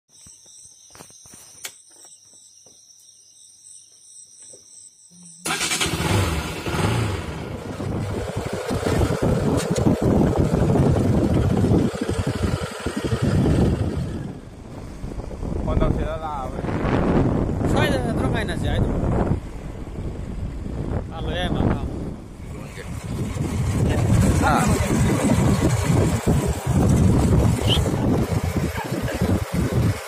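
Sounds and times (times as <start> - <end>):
motorcycle engine running: 5.4 - 17.7, 22.1 - 30.0.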